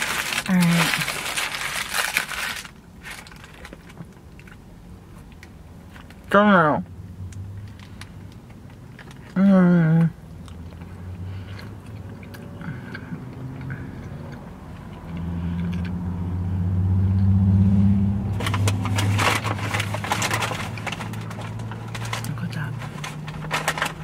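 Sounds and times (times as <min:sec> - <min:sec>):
paper wrapper rustling: 0:00.0 - 0:04.2, 0:18.4 - 0:24.0
person chewing: 0:10.0 - 0:16.0.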